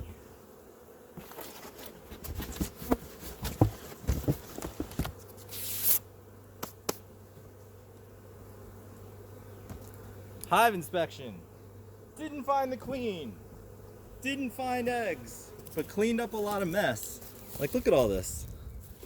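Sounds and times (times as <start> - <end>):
honeybees buzzing: 0.0 - 19.0
clicks and knocks from hive handling: 1.1 - 5.5, 6.6 - 8.1, 9.6 - 10.5, 15.6 - 18.0.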